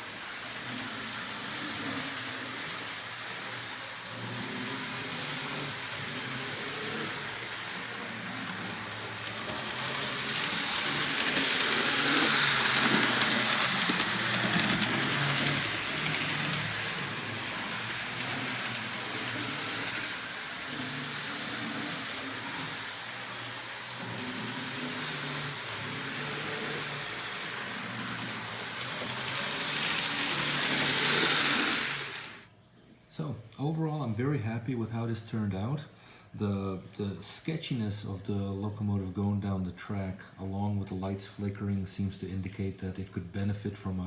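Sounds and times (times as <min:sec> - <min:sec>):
model locomotive motor running: 0:00.0 - 0:32.5.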